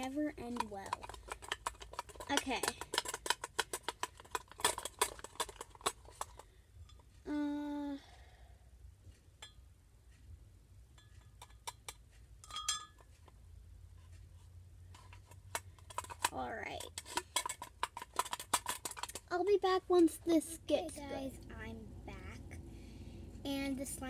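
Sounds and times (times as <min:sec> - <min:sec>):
spoon clinking against container: 0:11.0 - 0:13.1.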